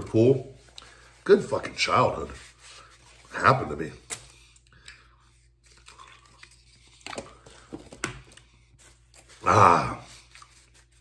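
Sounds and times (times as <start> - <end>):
man chewing: 4.5 - 7.5.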